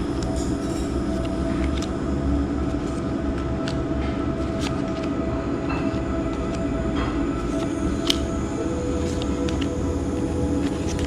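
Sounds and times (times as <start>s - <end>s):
constant hum: 0.0s - 11.0s
steady low rumble: 0.0s - 11.0s.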